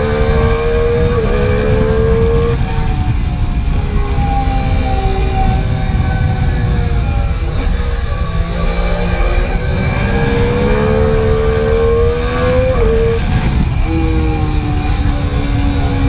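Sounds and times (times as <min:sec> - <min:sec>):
motorcycle engine at speed: 0:00.0 - 0:16.0
wind rush on microphone: 0:00.0 - 0:16.0.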